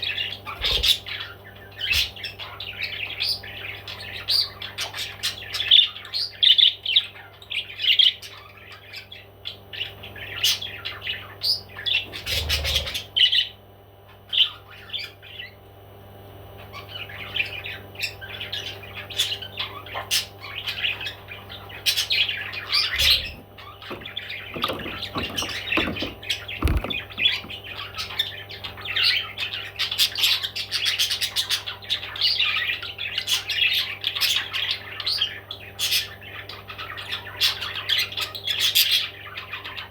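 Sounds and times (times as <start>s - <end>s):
parrots chirping and squawking: 0.0s - 15.6s, 16.6s - 39.9s
low thumps: 23.2s - 27.6s.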